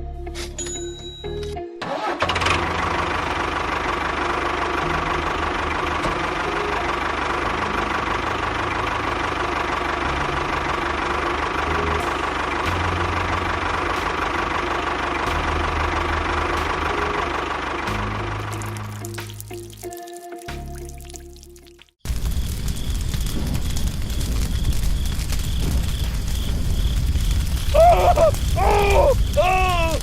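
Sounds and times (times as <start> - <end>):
small engine running: 1.9 - 18.6.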